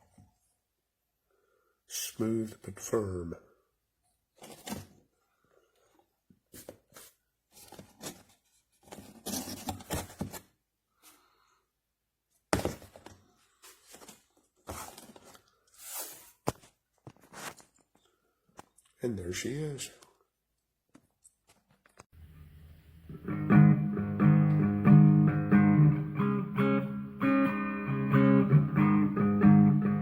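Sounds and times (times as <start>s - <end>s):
packaging rustling: 6.5s - 10.6s, 12.6s - 18.0s.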